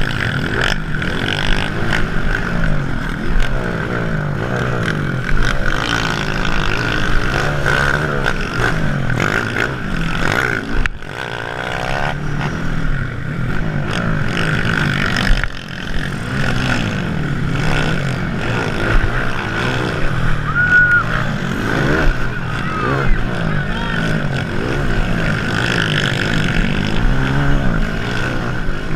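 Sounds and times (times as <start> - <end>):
motorcycle engines revving: 0.0 - 28.9.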